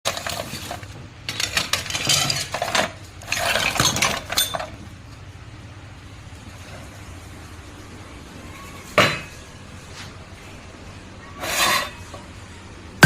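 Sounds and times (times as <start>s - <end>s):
metal parts clattering: 0.1s - 4.8s.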